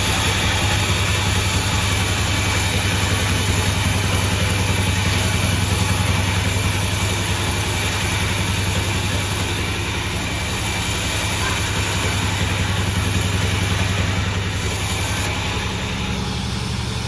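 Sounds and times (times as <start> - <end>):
sawmill engine drone: 0.0 - 17.0.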